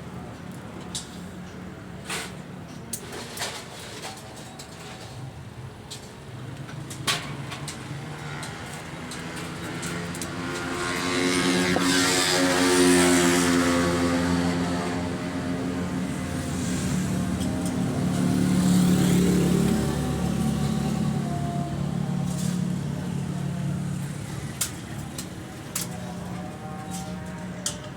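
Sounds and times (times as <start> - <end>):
motor vehicle engine running: 14.1 - 26.4.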